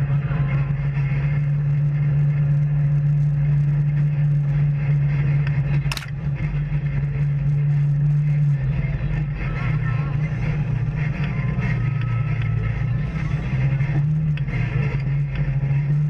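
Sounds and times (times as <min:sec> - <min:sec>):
engine low drone: 0:00.0 - 0:16.0
sharp click: 0:05.8 - 0:06.2.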